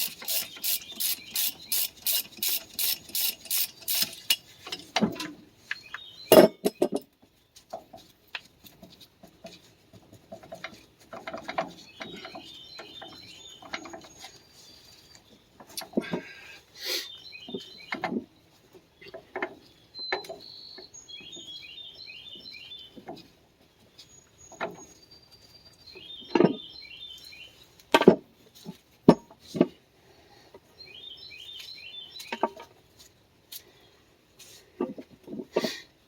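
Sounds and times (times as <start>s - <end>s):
hand tool knocks and clinks: 6.3s - 7.1s.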